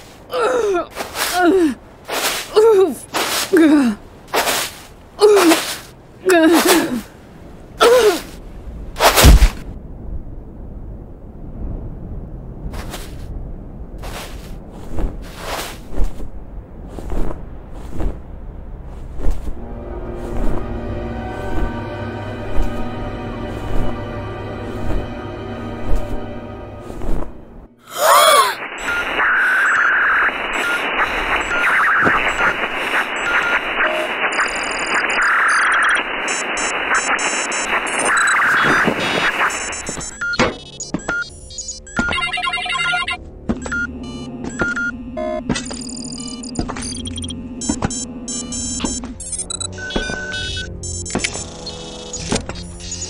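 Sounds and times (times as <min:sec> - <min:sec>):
low rumble: 0:08.4 - 0:27.8
harsh noise wash: 0:19.6 - 0:40.8
rapid electronic beeping: 0:28.6 - 0:53.0
alarm-like tone: 0:41.0 - 0:53.0.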